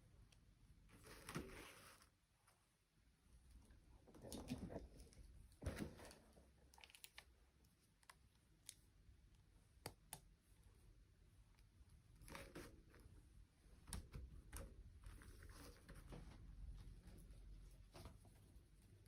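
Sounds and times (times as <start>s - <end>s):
soft rustles: 15.0s - 19.0s.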